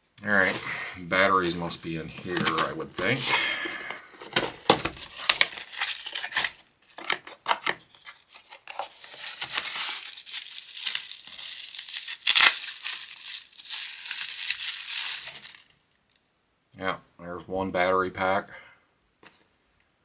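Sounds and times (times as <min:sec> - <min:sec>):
packaging crinkling and tearing: 0:01.4 - 0:15.8
packaging ripping: 0:01.7 - 0:15.8.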